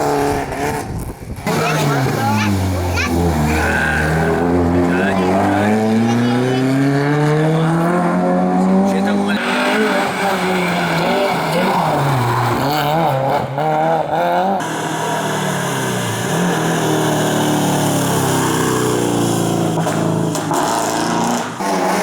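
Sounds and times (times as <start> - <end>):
rally car engine revving: 0.0 - 22.0
car engine steady rising note: 1.8 - 22.0.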